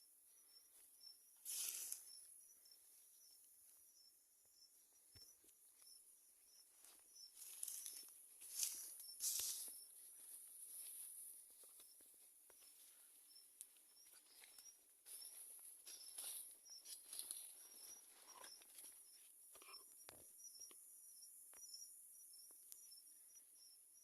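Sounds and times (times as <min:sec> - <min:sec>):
crickets chirping: 0:00.0 - 0:24.0
insects buzzing: 0:00.0 - 0:24.0.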